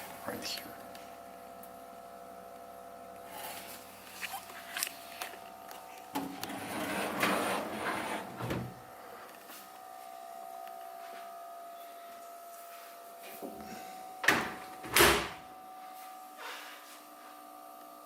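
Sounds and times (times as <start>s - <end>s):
fridge drawer sliding: 6.2s - 8.8s.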